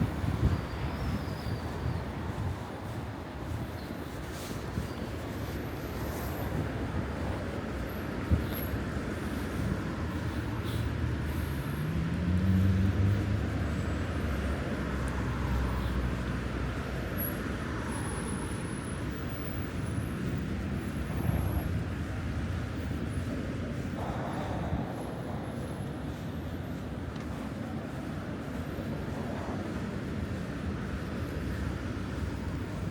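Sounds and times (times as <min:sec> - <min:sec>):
traffic rumble: 0:00.0 - 0:32.9
vehicle accelerating past: 0:11.8 - 0:15.1.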